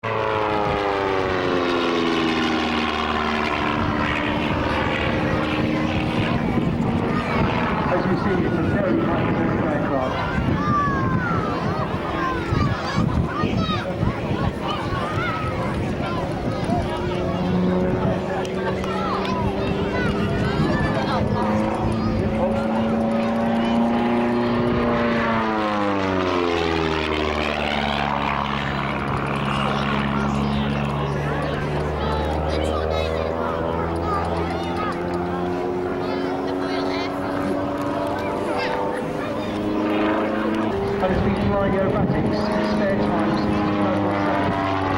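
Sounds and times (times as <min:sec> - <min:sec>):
aircraft engine drone: 0:00.0 - 0:44.9.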